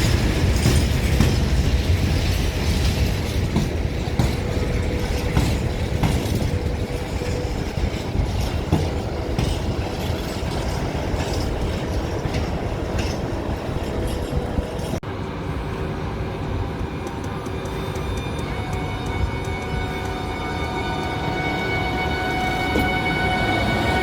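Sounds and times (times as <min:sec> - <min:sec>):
train wheel knocks: 0:00.0 - 0:15.0
train wagons rumbling: 0:00.0 - 0:24.0.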